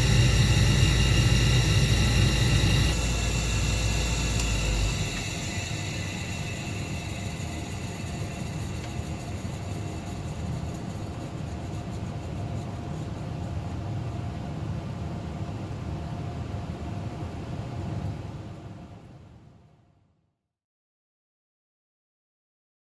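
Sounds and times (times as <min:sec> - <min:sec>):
gas furnace rumbling: 0:00.0 - 0:14.5
faint steady hum: 0:00.0 - 0:20.1.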